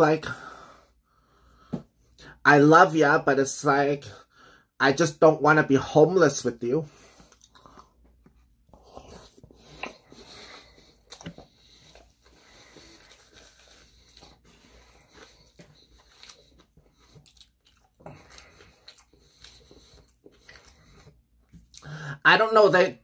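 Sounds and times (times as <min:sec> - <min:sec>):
person chewing with wet mouth clicks: 0:15.0 - 0:21.9.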